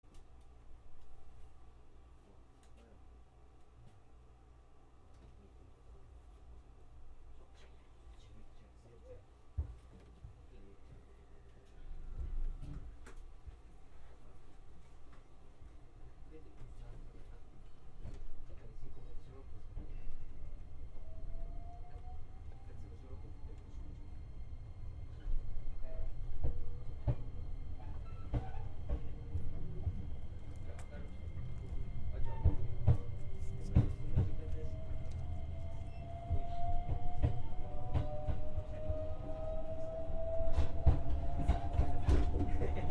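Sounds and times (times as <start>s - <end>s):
train cabin hum: 9.5s - 42.9s.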